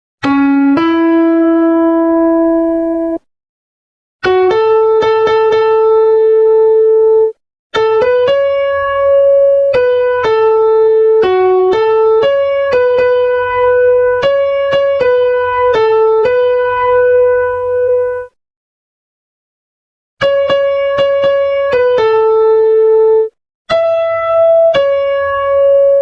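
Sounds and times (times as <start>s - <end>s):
electric piano melody: 0.2s - 3.3s, 4.2s - 18.4s, 20.2s - 26.0s.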